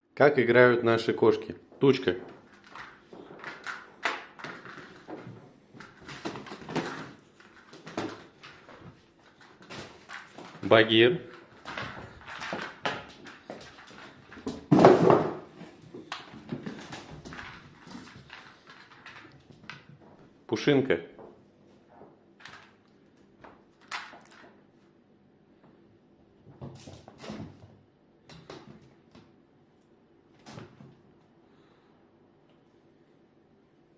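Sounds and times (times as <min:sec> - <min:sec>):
cats scuffling: 0:02.0 - 0:20.4, 0:26.4 - 0:29.3.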